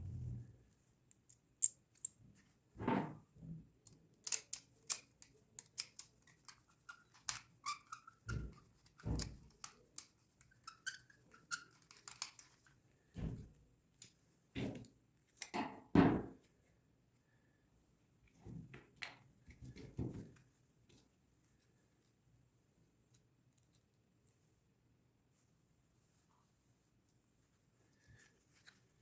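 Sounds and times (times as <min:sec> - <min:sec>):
small metal parts clinking: 0:04.2 - 0:08.0.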